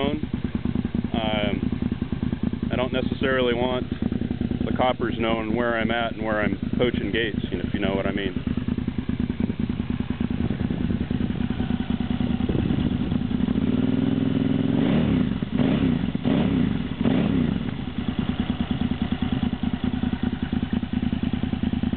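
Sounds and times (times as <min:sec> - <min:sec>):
motorcycle engine idling and revving: 0:00.0 - 0:21.9.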